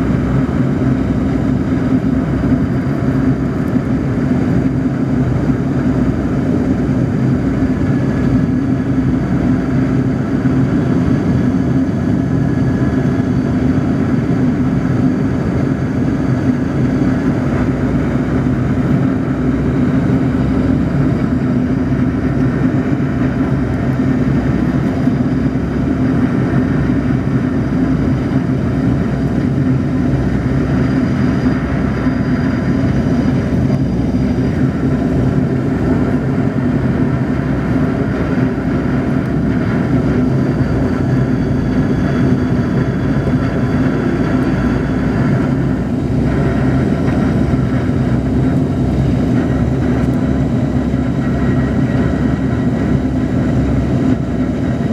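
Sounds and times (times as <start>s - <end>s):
jet engines droning: 0.0s - 54.9s.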